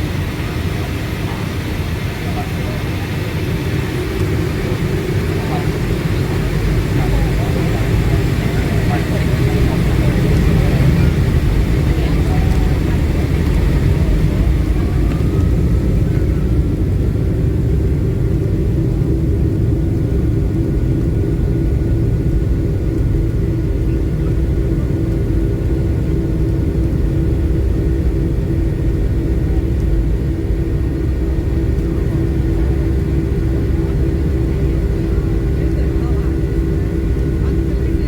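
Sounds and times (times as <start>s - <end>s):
jet engine cabin rumble: 0.0s - 38.0s.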